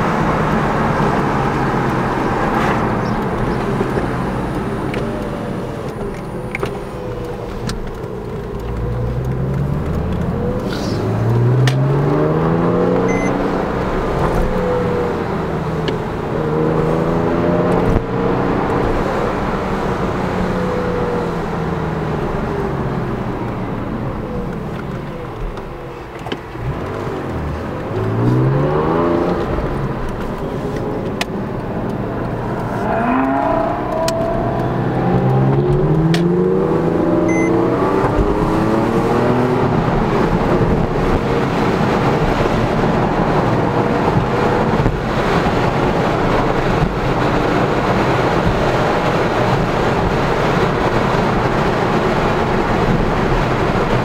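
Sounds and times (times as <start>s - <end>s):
car engine accelerating: 0.0s - 54.0s
road noise: 0.0s - 54.0s.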